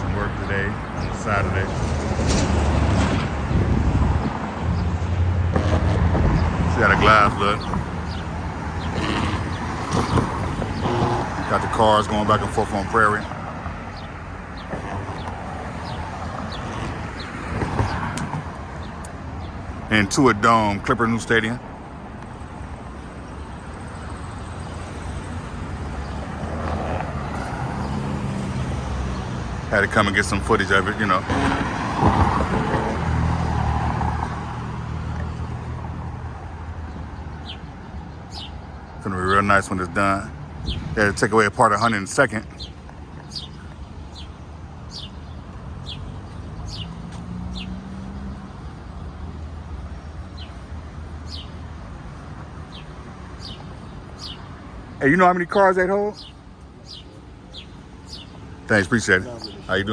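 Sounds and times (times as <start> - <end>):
traffic rumble: 0.0 - 59.9
vehicles driving past: 0.0 - 59.9
small bird chirping: 56.2 - 58.5.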